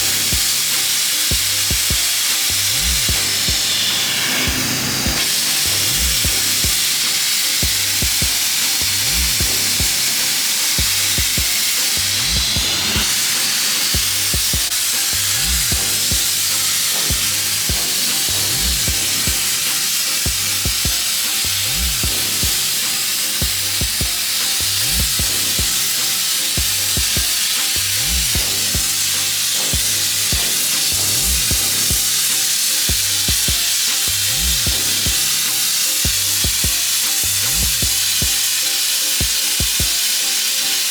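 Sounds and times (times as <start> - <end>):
background music with low beat: 0.0 - 40.9
sandblaster hissing: 0.0 - 40.9.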